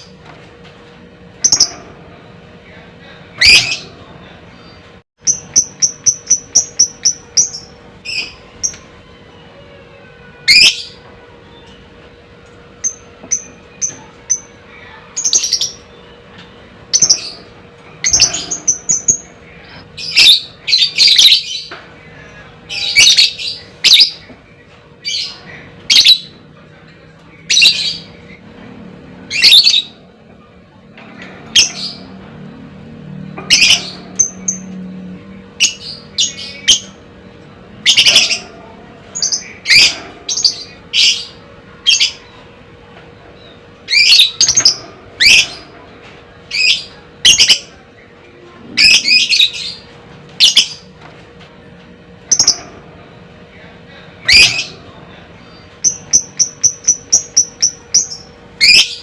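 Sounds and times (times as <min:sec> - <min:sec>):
bird chirping calls: 0:54.2 - 0:59.0.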